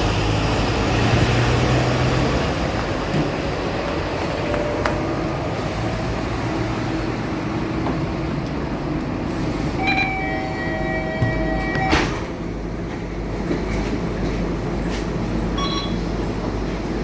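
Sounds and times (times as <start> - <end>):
bus engine and road noise: 0.0 - 17.0
shrill multi-tone squeal: 9.8 - 12.1.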